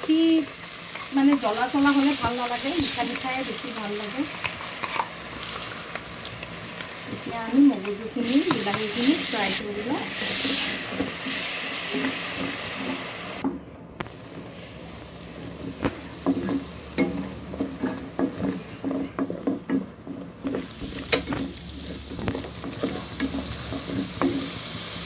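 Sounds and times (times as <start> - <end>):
paste sizzling in hot oil: 0.0 - 13.4, 20.5 - 25.0.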